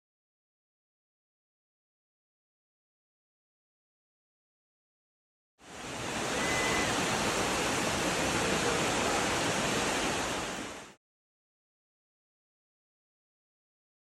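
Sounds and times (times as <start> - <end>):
flowing water rushing: 5.6 - 11.0
brief thin high tone: 6.4 - 6.9.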